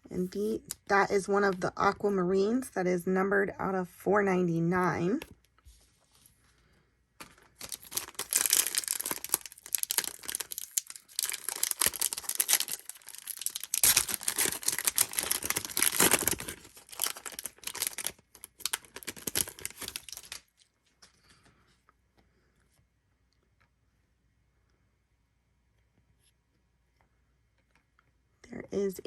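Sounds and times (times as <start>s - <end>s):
wrapper tearing and crinkling: 7.2s - 20.7s.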